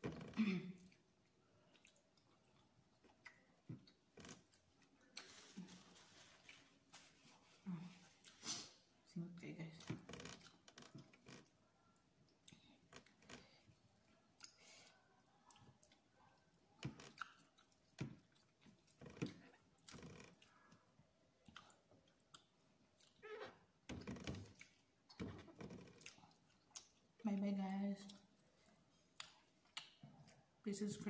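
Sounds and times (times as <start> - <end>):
soft mouth clicks and smacks: 0.8 - 5.4, 9.8 - 23.2, 24.4 - 27.1, 28.0 - 30.5
close-up chewing: 0.8 - 8.5, 10.4 - 23.3, 24.3 - 27.2, 28.0 - 30.6.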